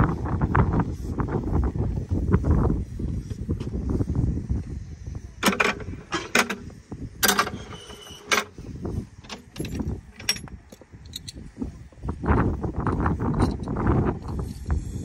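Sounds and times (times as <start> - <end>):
metallic clanks of railway cars: 5.4 - 11.4.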